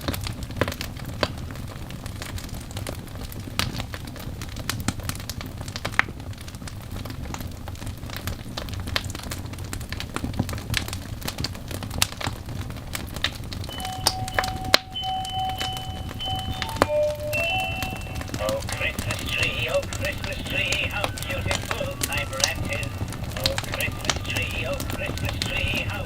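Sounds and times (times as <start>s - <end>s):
wood fire crackling: 1.8s - 26.0s
steady tones: 13.7s - 26.0s.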